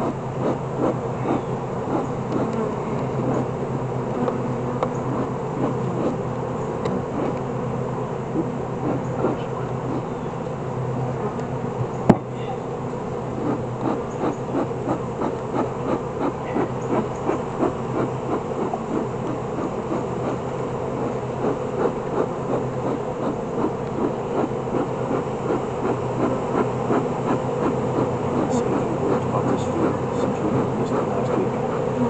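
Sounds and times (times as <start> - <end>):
honeybees buzzing: 0.0 - 32.0
rhythmic swishing: 13.3 - 32.0.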